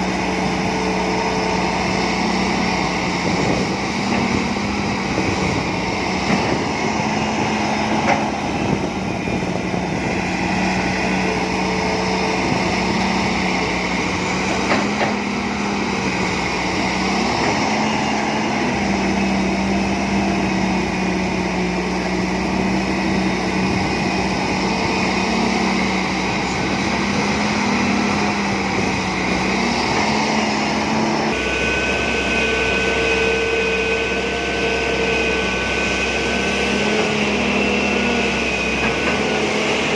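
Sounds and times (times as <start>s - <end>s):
excavator diesel engine running: 0.0s - 39.9s
high whine: 30.6s - 38.9s.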